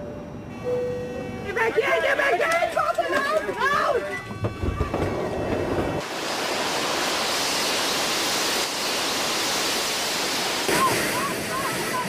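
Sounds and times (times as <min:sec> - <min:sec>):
loud rushing hiss: 0:05.6 - 0:12.0.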